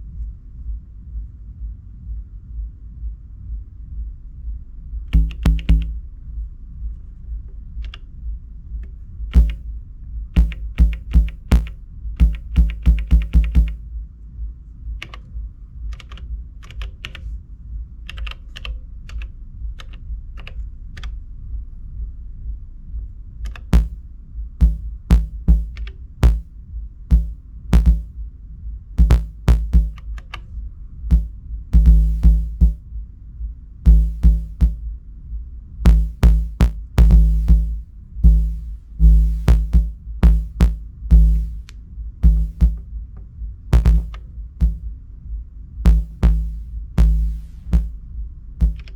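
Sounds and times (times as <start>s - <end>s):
deep synth bass notes: 5.2s - 6.1s, 9.4s - 9.6s, 10.4s - 13.8s, 23.8s - 24.0s, 24.6s - 26.5s, 27.1s - 28.1s, 29.0s - 30.0s, 31.1s - 32.8s, 33.9s - 34.8s, 35.9s - 42.8s, 43.8s - 44.9s, 45.9s - 48.0s, 48.6s - 48.9s.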